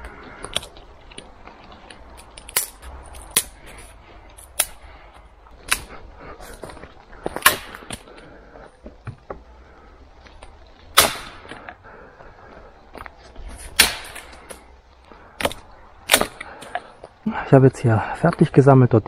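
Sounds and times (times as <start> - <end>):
twigs snapping: 0.0 - 4.9, 5.5 - 8.3, 12.9 - 17.2
rustling: 0.0 - 17.3.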